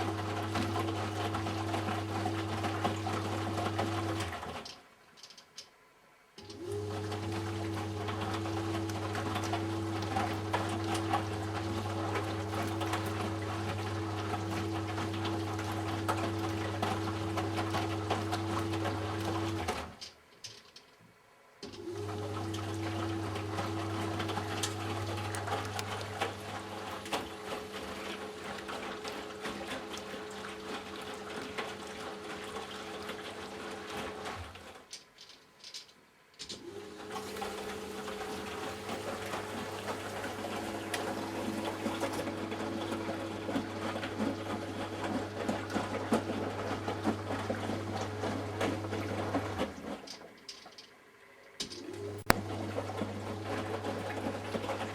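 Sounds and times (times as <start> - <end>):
washing machine motor hum: 0.0 - 4.8, 6.4 - 20.0, 21.6 - 34.9, 36.5 - 54.9
water sloshing in tub: 6.4 - 20.0, 21.8 - 34.9, 36.6 - 50.5.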